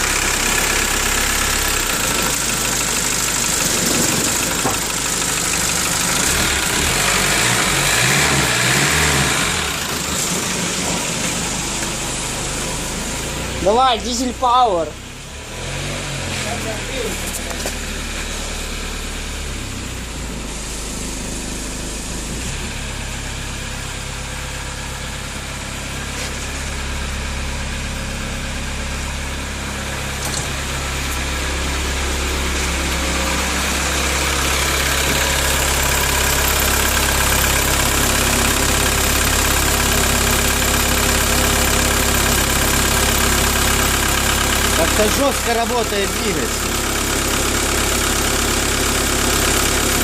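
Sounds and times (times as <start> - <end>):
diesel engine idling: 0.0 - 50.0.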